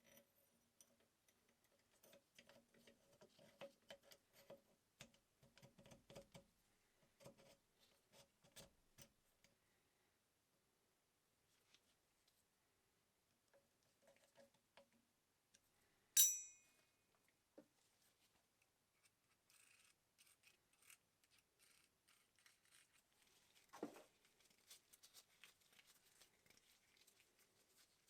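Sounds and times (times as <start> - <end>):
metallic clink with ring: 16.2 - 16.7.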